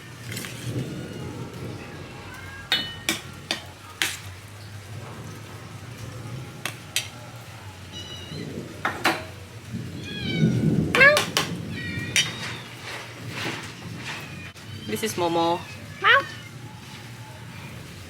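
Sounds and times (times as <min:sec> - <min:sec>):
cats meowing: 0:00.0 - 0:03.8, 0:07.8 - 0:08.9, 0:09.9 - 0:16.9
rain hissing: 0:00.0 - 0:18.0.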